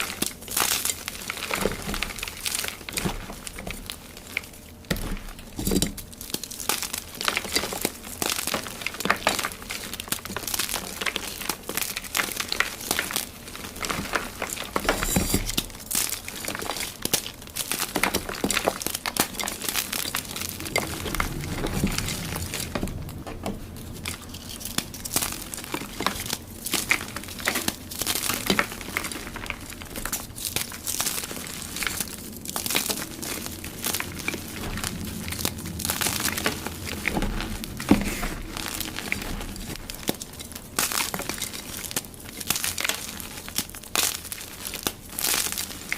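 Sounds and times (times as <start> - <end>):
chalk blocks being crushed: 0.0 - 22.9.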